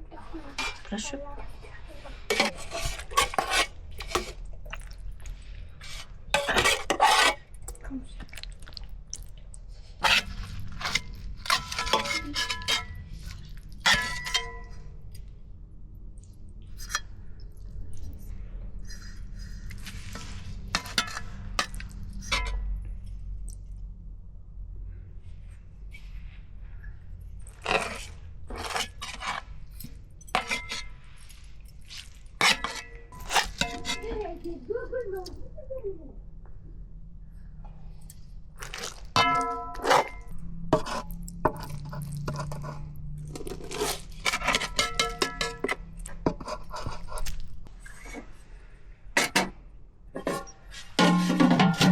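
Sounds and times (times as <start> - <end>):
metal pots and dishes clanking: 0.4 - 1.0, 2.1 - 4.4, 6.4 - 7.4, 10.0 - 12.9, 13.8 - 14.8, 20.8 - 22.7, 32.4 - 34.2, 38.6 - 42.8, 44.3 - 47.0, 49.2 - 49.6, 50.2 - 51.9.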